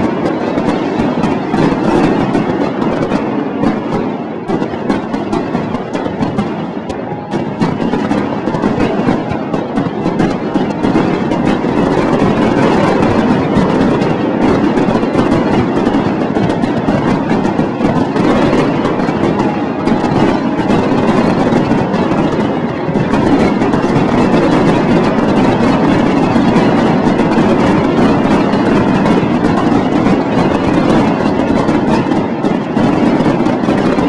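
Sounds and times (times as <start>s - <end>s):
continuous fireworks rumble: 0.0s - 34.0s
fireworks bangs and crackles: 0.0s - 34.0s.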